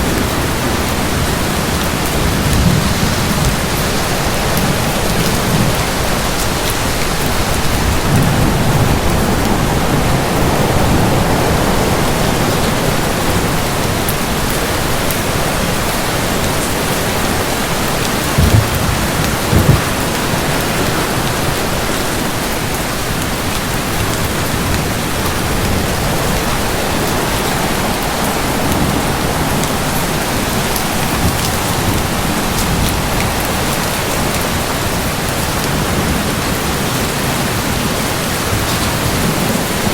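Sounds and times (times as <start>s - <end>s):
heavy rain: 0.0s - 39.9s
thunder rumbling: 17.1s - 21.4s
loud low thuds: 18.3s - 20.2s.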